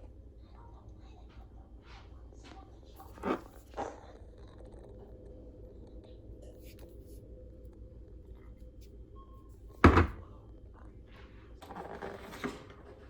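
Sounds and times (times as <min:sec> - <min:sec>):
loud thunk: 0:09.8 - 0:10.2.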